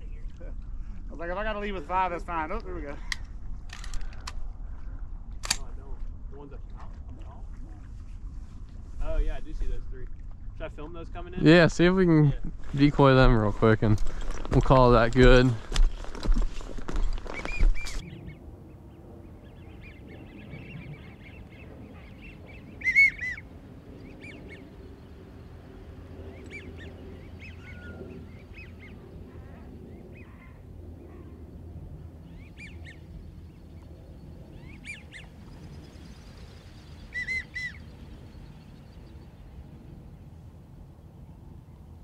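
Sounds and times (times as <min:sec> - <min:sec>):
whistled duck calls: 0:22.0 - 0:23.5, 0:37.1 - 0:37.9.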